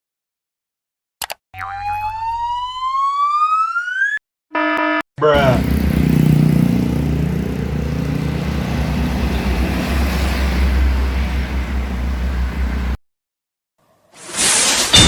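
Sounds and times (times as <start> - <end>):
large vehicle engine rumbling: 6.8 - 13.0.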